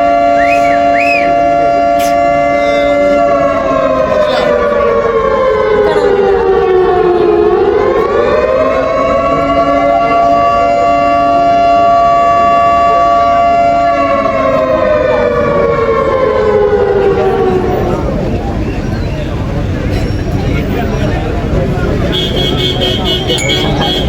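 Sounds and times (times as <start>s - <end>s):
siren wailing: 0.0s - 19.1s.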